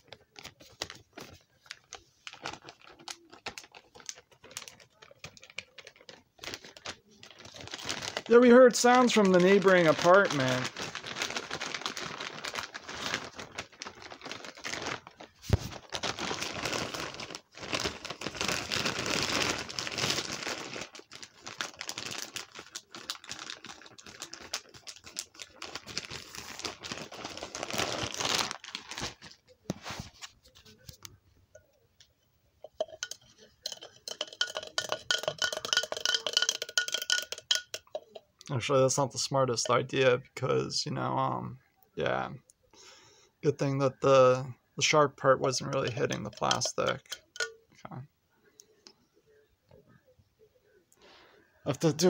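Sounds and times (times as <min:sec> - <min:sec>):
plastic bag crinkling: 0:00.0 - 0:31.2, 0:32.6 - 0:38.2, 0:44.8 - 0:47.6.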